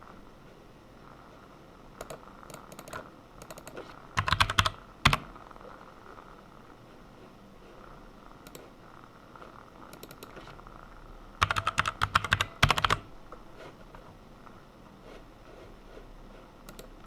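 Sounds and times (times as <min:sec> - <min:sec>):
typing on computer keyboard: 0:02.0 - 0:05.3, 0:09.9 - 0:10.5, 0:11.4 - 0:13.1, 0:16.7 - 0:17.0.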